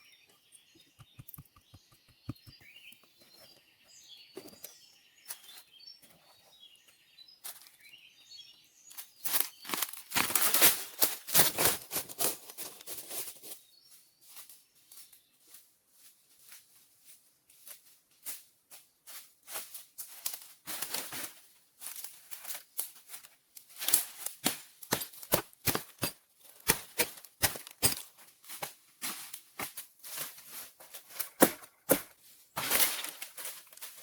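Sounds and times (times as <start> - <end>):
rustling and crackling: 19.1 - 34.0.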